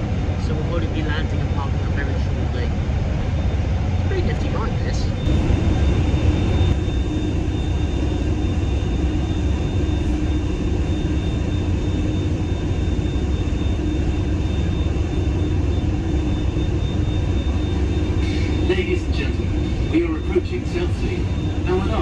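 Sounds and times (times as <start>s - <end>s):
hovercraft engines humming: 0.0s - 22.0s
thin steady whine: 0.0s - 22.0s.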